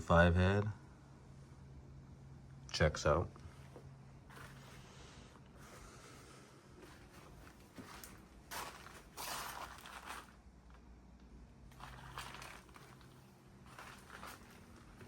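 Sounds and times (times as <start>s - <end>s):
scuffing and rustling handling noises: 3.6s - 5.0s, 6.8s - 10.4s, 11.7s - 15.0s.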